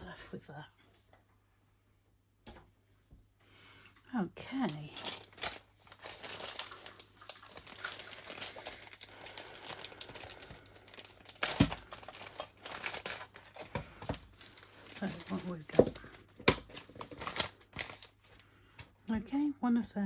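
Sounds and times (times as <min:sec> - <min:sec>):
packaging crinkling: 0:04.6 - 0:18.4.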